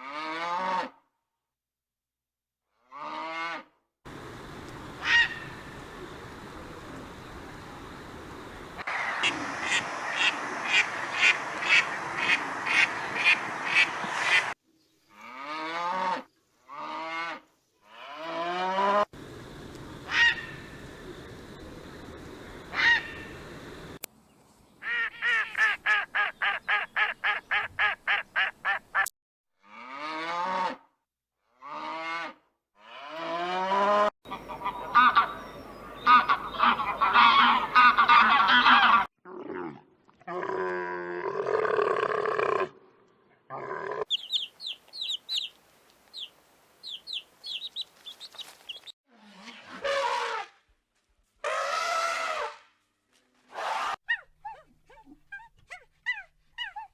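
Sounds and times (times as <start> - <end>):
waterfowl quacking: 4.1 - 14.6, 19.2 - 24.0, 34.3 - 39.1.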